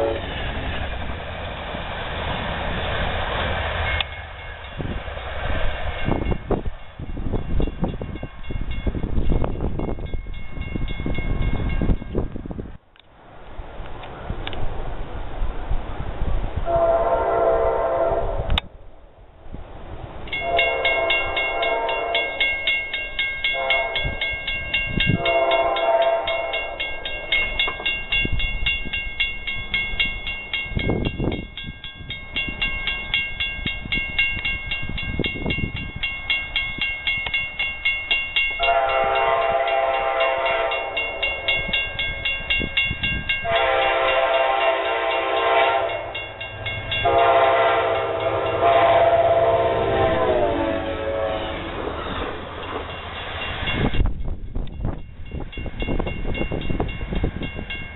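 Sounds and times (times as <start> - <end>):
locomotive horn blasts: 0.0 - 0.4, 16.6 - 18.6, 20.4 - 22.4, 23.5 - 24.2, 25.1 - 26.8, 38.6 - 41.2, 43.4 - 46.1, 47.0 - 51.7
train rumbling past: 0.0 - 57.9.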